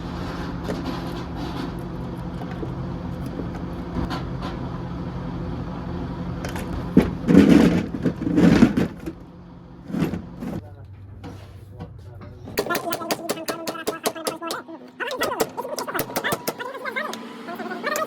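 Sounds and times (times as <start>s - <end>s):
vehicle engine running: 0.0s - 18.0s
sharp knocks and rattling: 6.4s - 14.6s.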